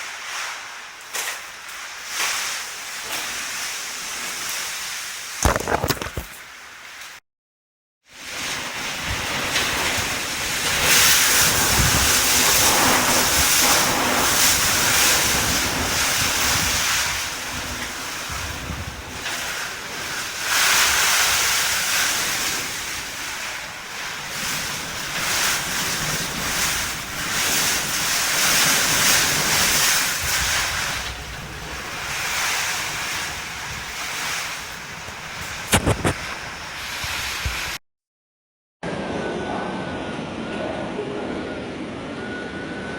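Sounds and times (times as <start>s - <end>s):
wind gusting on microphone: 8.6s - 37.8s.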